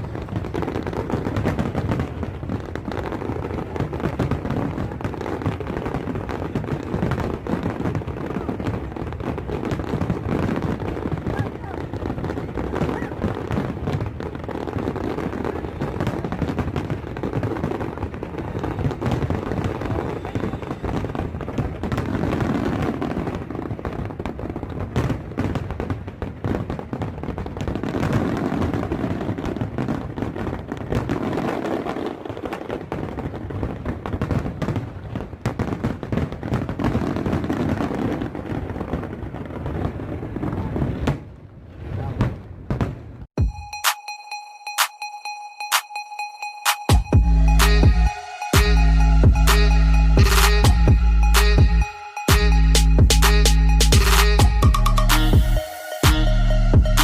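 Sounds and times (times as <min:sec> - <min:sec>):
fireworks bangs: 0:00.0 - 0:43.5
fireworks crackle: 0:00.0 - 0:44.0.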